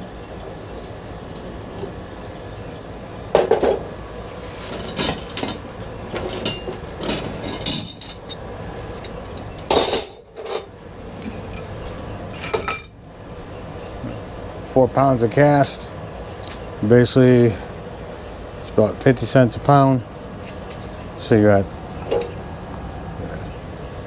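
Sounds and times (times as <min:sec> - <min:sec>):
scrap metal clanking: 0:04.4 - 0:11.7, 0:12.4 - 0:13.0, 0:22.0 - 0:22.4.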